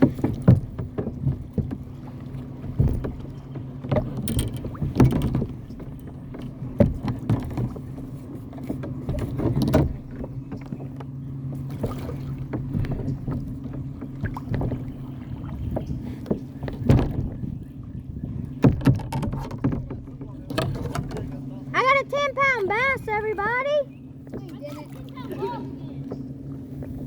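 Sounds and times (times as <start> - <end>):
knocks against kayak hull: 0.0 - 11.0, 11.7 - 17.6, 18.2 - 21.5
water swishes: 0.0 - 27.0.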